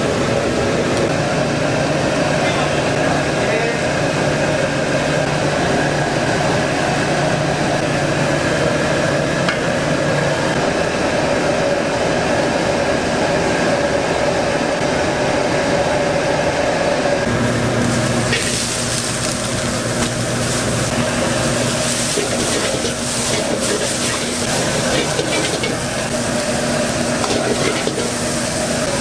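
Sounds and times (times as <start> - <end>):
wok burners roaring: 0.0 - 29.0
food sizzling while stirred: 17.5 - 29.0.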